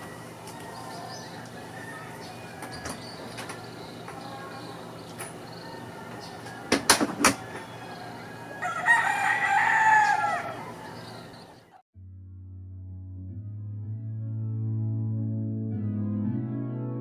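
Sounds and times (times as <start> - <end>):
rooster crowing: 0.0 - 11.8
sharp knocks: 6.7 - 7.5
background music with synth tones: 12.1 - 17.0.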